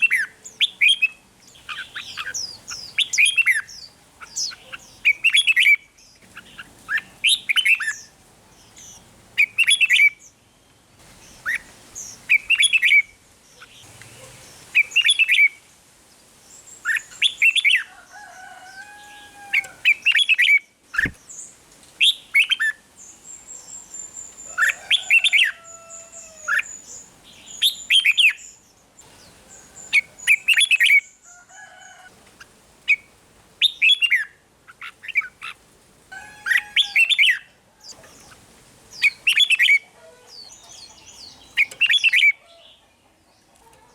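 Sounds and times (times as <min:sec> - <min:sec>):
bird chirpy song: 0:00.0 - 0:15.6, 0:16.4 - 0:31.4, 0:32.4 - 0:35.6, 0:36.2 - 0:43.8
lower whistled bird notes: 0:40.4 - 0:42.4.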